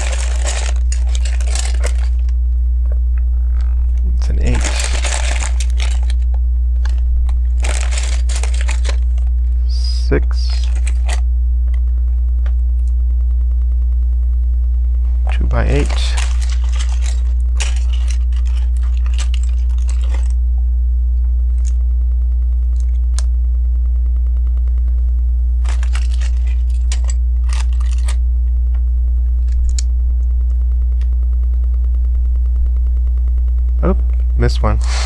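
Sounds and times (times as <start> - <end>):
plastic pieces clicking and rattling: 0.0 - 2.3, 4.4 - 9.3, 10.4 - 11.2, 15.3 - 20.3, 25.6 - 28.2, 29.4 - 29.9
steady low hum: 0.0 - 35.0.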